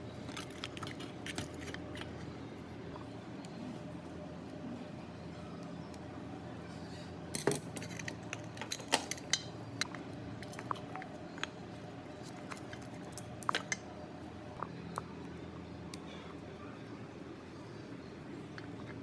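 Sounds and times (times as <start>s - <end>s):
steady low hum: 0.0s - 19.0s
small metal parts clinking: 0.2s - 2.2s, 7.3s - 11.6s, 12.2s - 13.8s.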